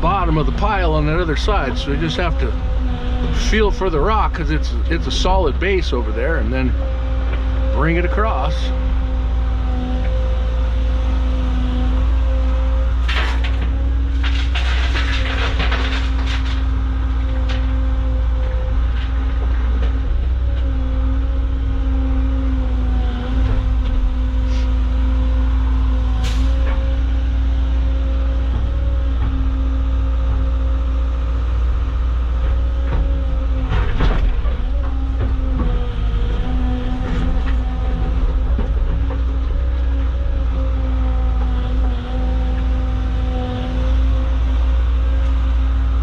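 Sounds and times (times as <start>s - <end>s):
excavator diesel engine running: 0.0s - 46.0s
bucket clanking and scraping rock: 13.1s - 17.7s.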